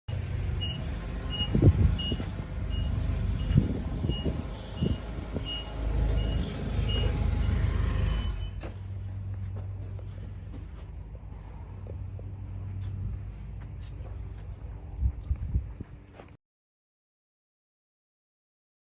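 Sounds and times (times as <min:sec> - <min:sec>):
low engine rumble: 0:00.1 - 0:16.4
reversing alarm beeping: 0:00.6 - 0:08.6.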